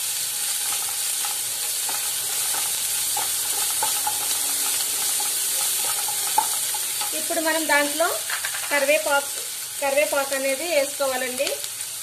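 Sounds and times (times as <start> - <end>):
onions sizzling in hot oil: 0.0 - 12.0
wooden spatula scraping a pan: 0.6 - 7.1.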